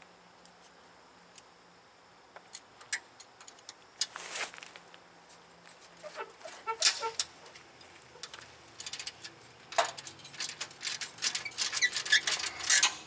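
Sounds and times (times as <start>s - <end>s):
metal tools clinking: 6.8s - 13.0s.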